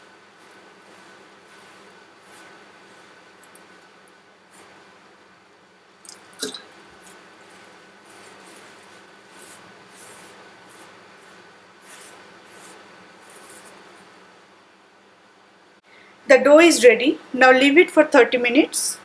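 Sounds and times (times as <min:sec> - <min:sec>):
hands kneading soft dough: 0:00.0 - 0:05.1, 0:06.0 - 0:14.3.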